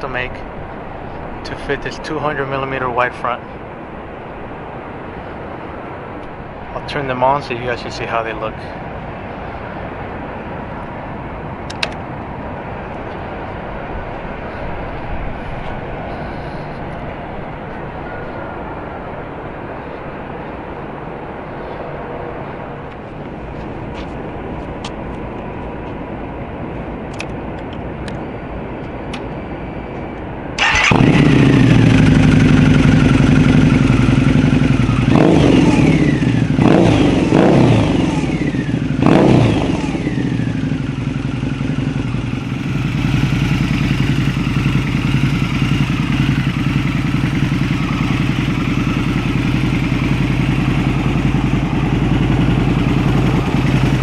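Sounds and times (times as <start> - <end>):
motorcycle engine revving and idling: 30.6 - 54.0
steady hum: 39.6 - 54.0.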